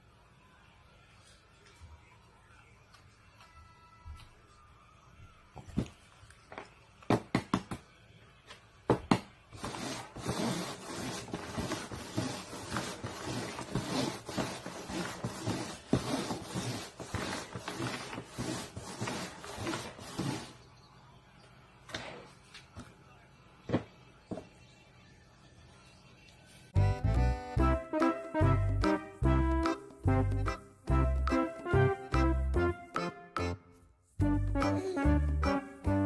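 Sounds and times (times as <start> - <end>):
cups scraping on cardboard: 9.6 - 20.6.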